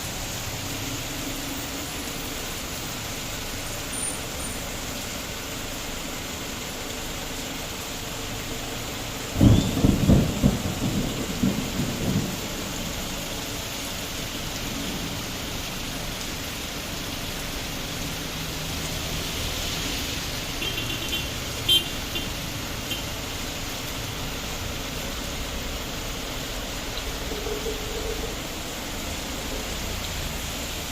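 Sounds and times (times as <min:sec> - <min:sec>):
heavy rain: 0:00.0 - 0:30.9
thunder crack and rumble: 0:09.3 - 0:13.1.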